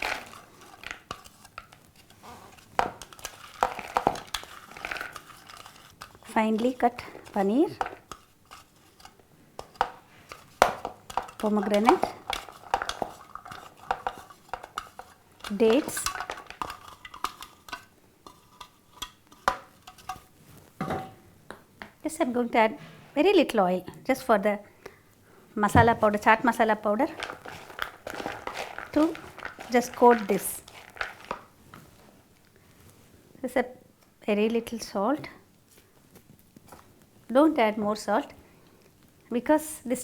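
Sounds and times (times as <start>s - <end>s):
spoon clinking and scraping bowl: 27.2s - 31.4s.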